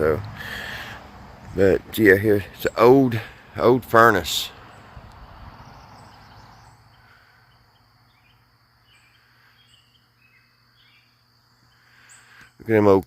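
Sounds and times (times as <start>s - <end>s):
bird chirps: 4.2s - 12.7s
high insect drone: 4.5s - 12.7s.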